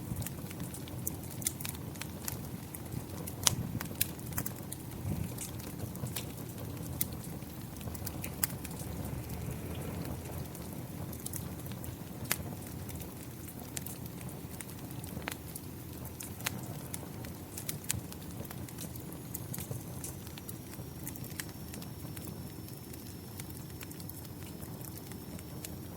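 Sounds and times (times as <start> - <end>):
fire crackling in a fireplace: 0.0 - 25.9
rain falling: 2.3 - 21.4.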